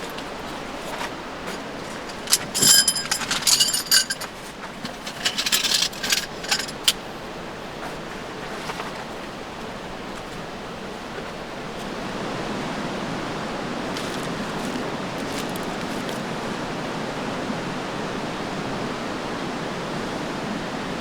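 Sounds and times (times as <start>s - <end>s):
small metal pieces clinking: 1.5s - 4.3s, 4.9s - 7.0s.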